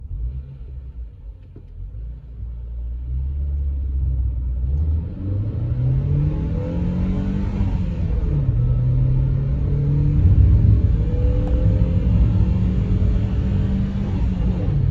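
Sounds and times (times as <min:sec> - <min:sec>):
car engine accelerating: 0:00.0 - 0:14.9.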